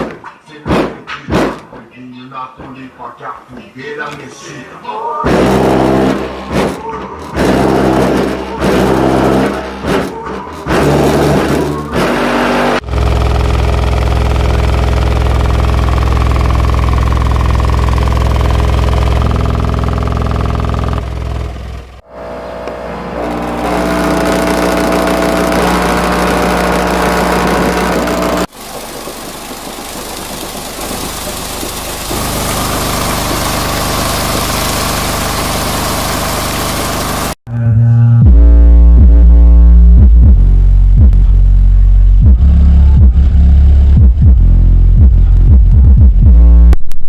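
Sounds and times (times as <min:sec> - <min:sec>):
loud bass-heavy music: 0:05.2 - 0:28.5, 0:32.1 - 0:46.8.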